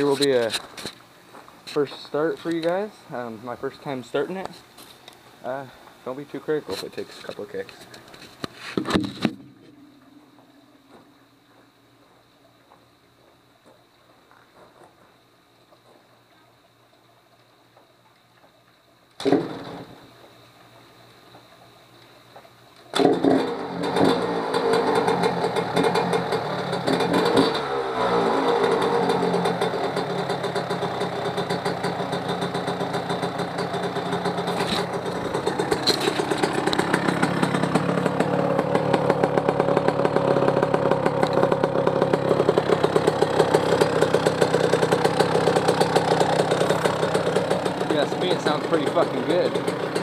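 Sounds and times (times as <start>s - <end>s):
motorcycle engine kick-started: 19.2s - 20.1s, 22.8s - 50.0s
two-stroke engine popping: 22.9s - 50.0s.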